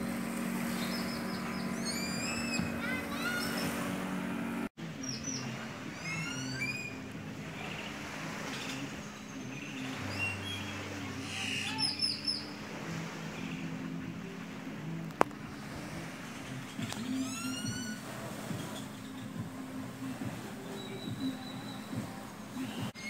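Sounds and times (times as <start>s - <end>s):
steady low hum: 0.0s - 5.0s
birds chirping and whistling: 0.1s - 7.0s, 7.6s - 12.6s, 16.2s - 23.0s.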